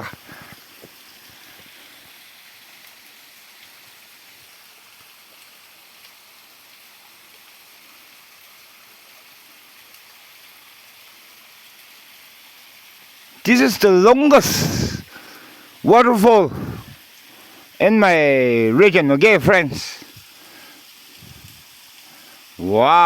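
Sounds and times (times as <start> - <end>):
waterfall rushing: 13.3 - 23.0.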